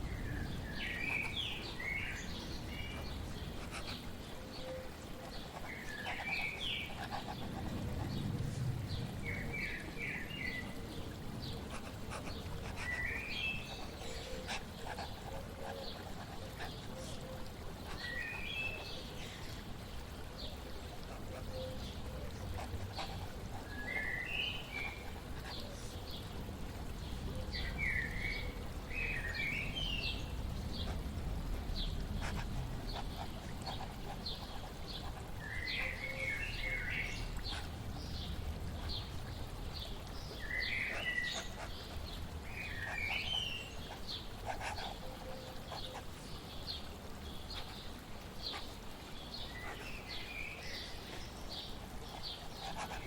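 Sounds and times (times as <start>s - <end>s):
flowing water rushing: 0.0s - 53.0s.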